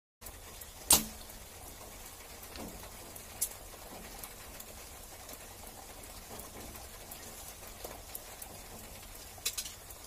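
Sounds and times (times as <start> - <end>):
rain falling and dripping: 0.2 - 10.0.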